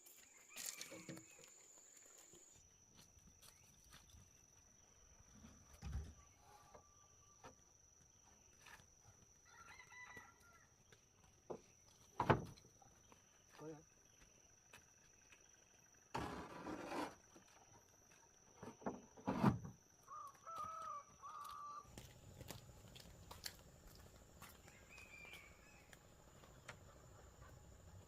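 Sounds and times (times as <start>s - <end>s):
rustle: 0.0s - 2.6s
insects droning: 0.0s - 28.0s.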